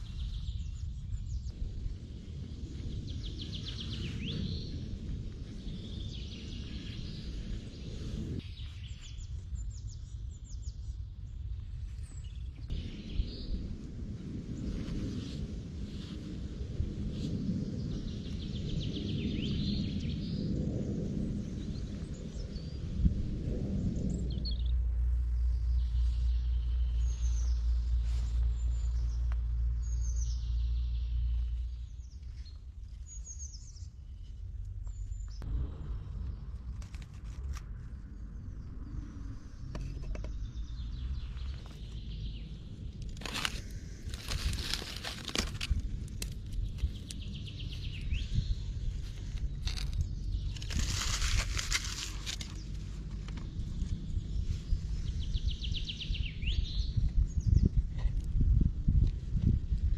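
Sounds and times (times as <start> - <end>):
low outdoor rumble: 0.0 - 59.9
rustles: 24.2 - 55.2.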